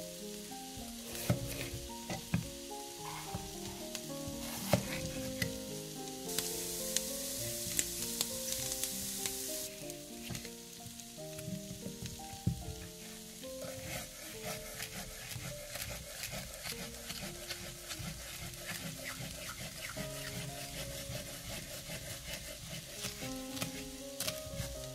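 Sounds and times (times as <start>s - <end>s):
vegetables sizzling in oil: 0.0s - 24.9s
pan stirring ticks: 11.4s - 24.8s.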